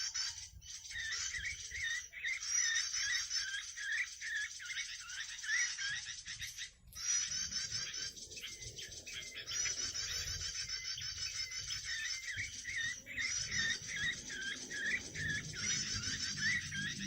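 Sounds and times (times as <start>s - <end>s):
songbirds chirping and warbling: 0.0s - 17.0s.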